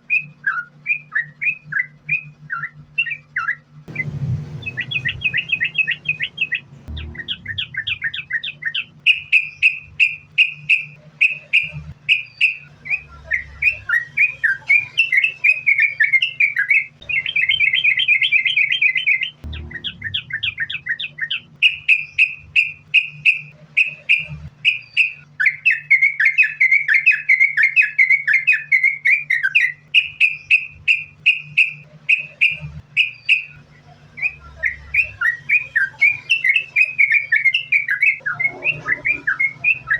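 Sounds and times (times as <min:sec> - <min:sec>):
bird chirping song: 0:00.0 - 0:39.9
steady low hum: 0:00.0 - 0:39.9.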